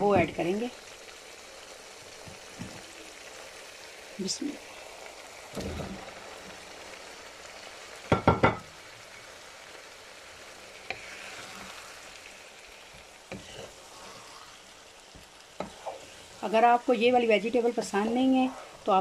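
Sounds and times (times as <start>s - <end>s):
meat sizzling in a frying pan: 0.0s - 19.0s
soft thud: 5.6s - 6.0s.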